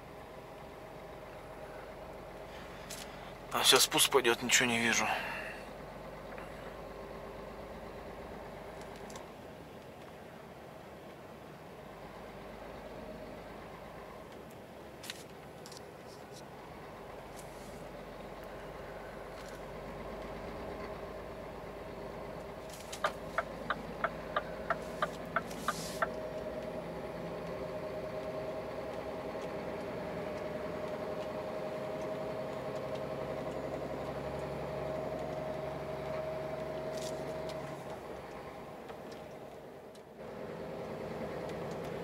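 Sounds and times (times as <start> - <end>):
truck engine drone: 0.0 - 42.0
sharp ticks: 23.0 - 26.2.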